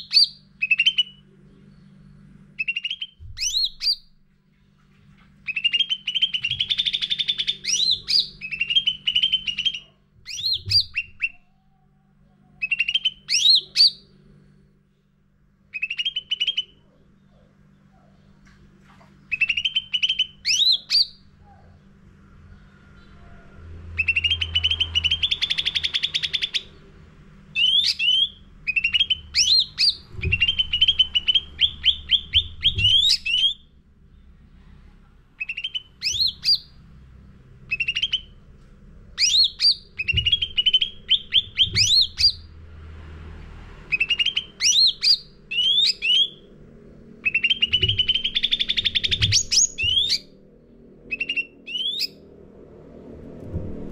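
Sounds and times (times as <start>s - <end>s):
faint low hum: 0.0s - 53.9s
songbird trills and whistles: 2.6s - 4.1s, 5.4s - 11.5s, 12.6s - 14.0s, 15.7s - 17.5s, 19.3s - 21.2s, 24.0s - 26.7s, 27.6s - 33.6s, 35.4s - 36.8s, 37.7s - 38.3s, 39.2s - 42.4s, 43.9s - 46.5s, 47.2s - 50.3s, 51.1s - 52.2s.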